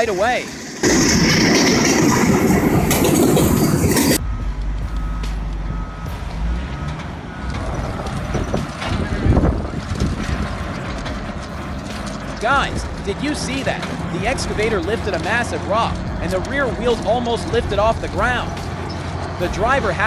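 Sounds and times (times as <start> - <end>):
harsh rushing noise: 0.0 - 20.0
heavy machinery rumbling: 0.0 - 20.0
faint steady beep: 4.2 - 8.8.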